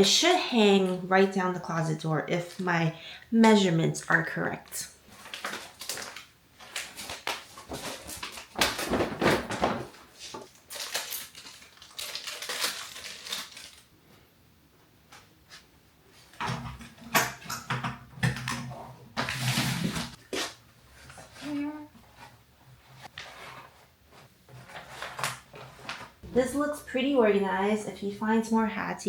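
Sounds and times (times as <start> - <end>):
packaging rustling: 5.1 - 13.9, 24.5 - 26.2.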